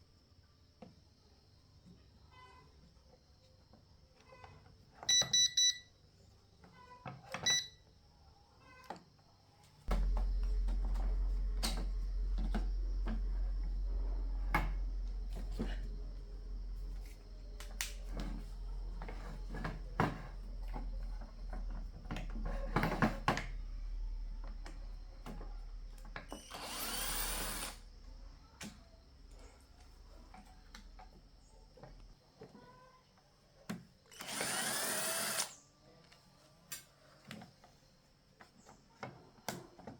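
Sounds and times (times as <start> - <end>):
electric motor humming: 9.9 - 20.1, 26.2 - 27.9, 34.1 - 35.6
hissing grinding burst: 26.4 - 27.8, 34.1 - 35.6.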